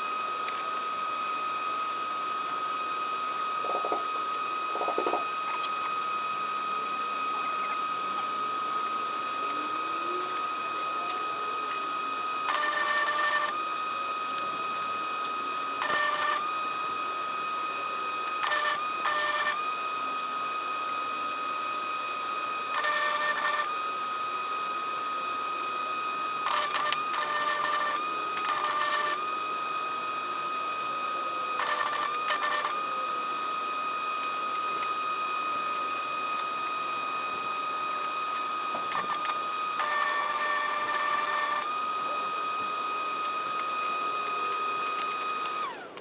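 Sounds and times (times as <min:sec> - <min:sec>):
steady high whine: 0:00.0 - 0:20.4, 0:35.6 - 0:46.0.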